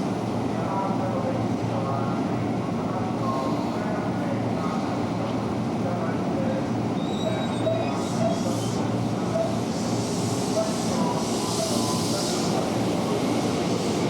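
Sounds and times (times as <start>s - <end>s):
electric train rumbling: 3.8s - 14.0s
train hissing: 7.0s - 14.0s.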